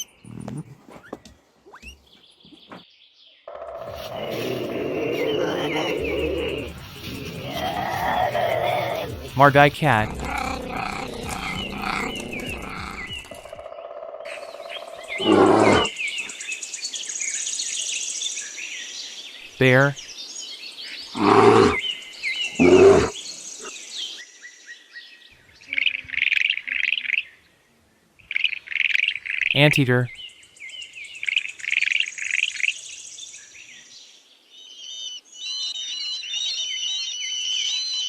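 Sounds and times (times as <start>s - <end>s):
bear growling: 0.0s - 1.0s, 3.5s - 13.6s, 15.0s - 15.9s, 21.1s - 21.9s, 22.5s - 23.7s
birds chirping: 0.0s - 27.4s.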